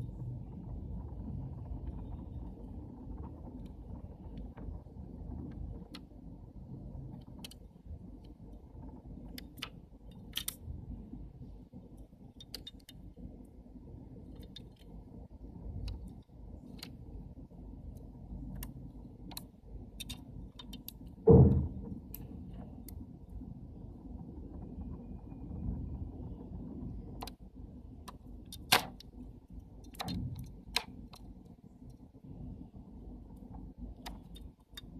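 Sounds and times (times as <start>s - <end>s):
steady low rumble: 0.0s - 34.9s
small lens parts clicking: 9.3s - 10.7s, 17.9s - 21.1s
loud thump: 21.3s - 21.9s.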